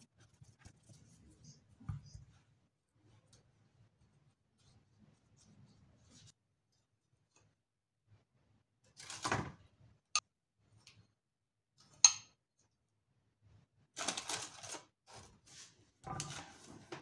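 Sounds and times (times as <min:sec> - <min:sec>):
scraping rustle on baking paper: 0:14.0 - 0:17.0.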